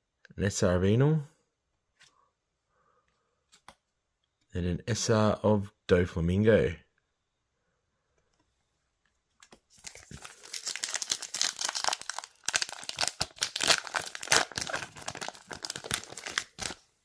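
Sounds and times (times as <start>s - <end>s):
wrapper tearing and crinkling: 9.8s - 16.8s.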